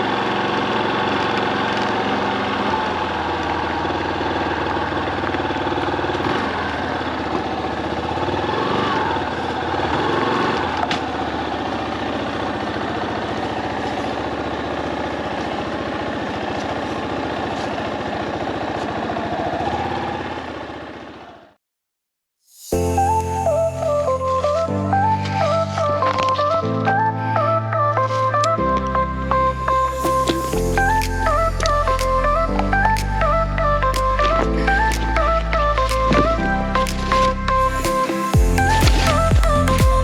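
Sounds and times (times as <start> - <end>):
motorcycle engine running: 0.0 - 21.5, 29.6 - 40.0.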